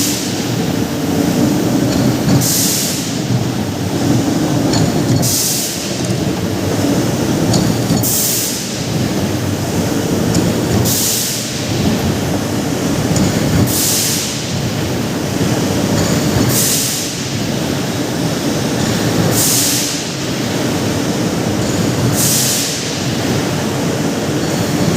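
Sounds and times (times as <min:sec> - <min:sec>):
machine rumbling under load: 0:00.0 - 0:13.8.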